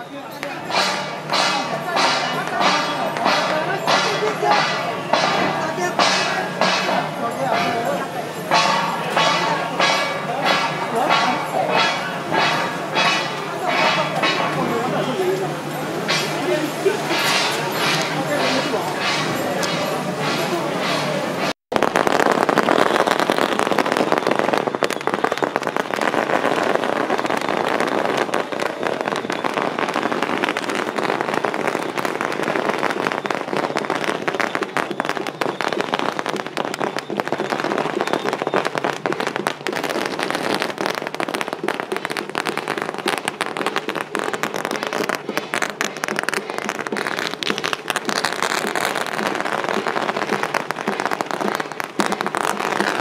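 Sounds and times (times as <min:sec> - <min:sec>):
firecrackers crackling: 0:00.0 - 0:53.0.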